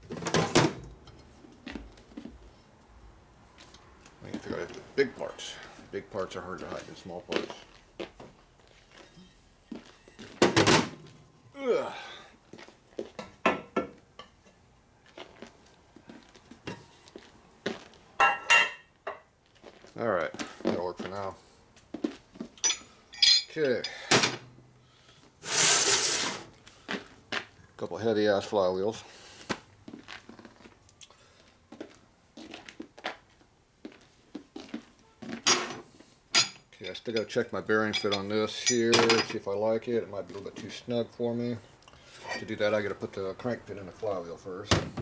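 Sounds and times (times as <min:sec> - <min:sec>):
short metallic ring: 0:22.6 - 0:23.6
metal parts clinking: 0:22.6 - 0:24.0, 0:37.9 - 0:39.4.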